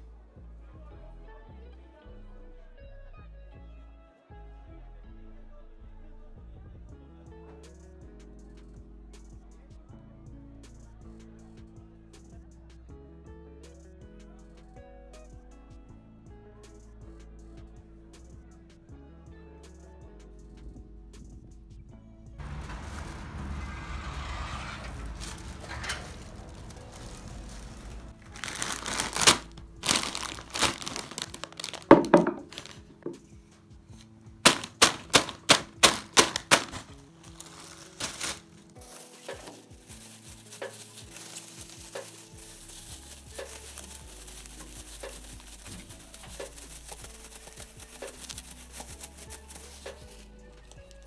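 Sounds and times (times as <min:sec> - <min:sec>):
soft background music: 0:00.0 - 0:51.0
loud crinkling rustling: 0:22.4 - 0:51.0.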